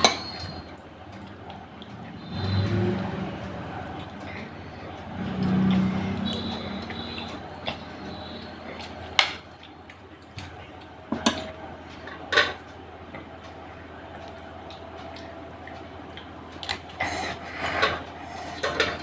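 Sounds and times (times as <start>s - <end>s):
cutlery clinking on dish: 0.0s - 0.6s, 17.7s - 19.0s.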